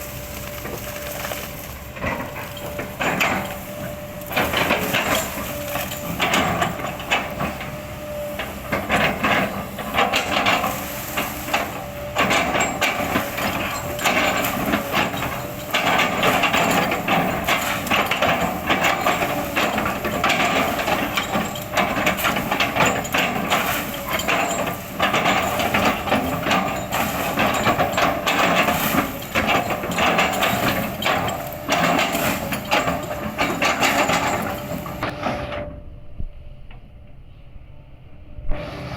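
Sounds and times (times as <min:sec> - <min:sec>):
bucket crushing wood: 0:00.0 - 0:03.6
excavator engine under load: 0:00.0 - 0:38.9.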